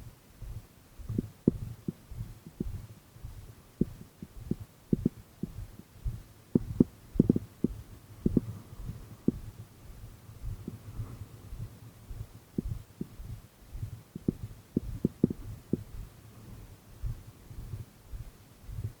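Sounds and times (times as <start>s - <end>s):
dull low thumps: 0.0s - 19.0s.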